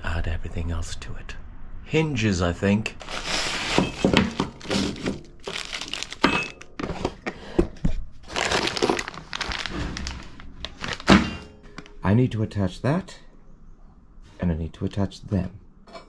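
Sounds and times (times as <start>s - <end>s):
small hard parts clinking: 3.0s - 6.8s.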